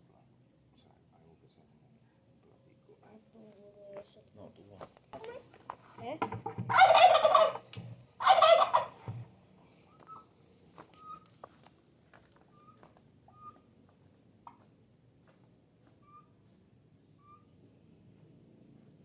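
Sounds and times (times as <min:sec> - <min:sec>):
turkey gobbling: 0:06.7 - 0:09.2, 0:11.0 - 0:11.2, 0:12.6 - 0:13.7.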